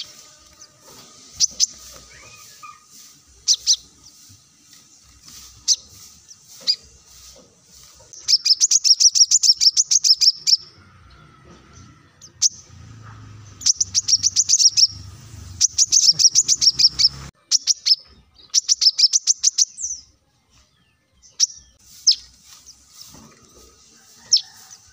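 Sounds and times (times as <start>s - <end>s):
bird chirping rapidly: 0.0s - 20.1s, 21.2s - 23.2s.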